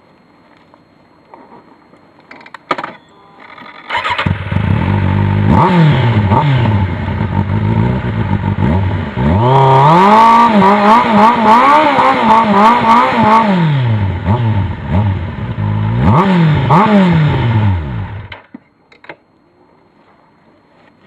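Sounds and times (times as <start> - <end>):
motorcycle engine revving: 3.9 - 18.4.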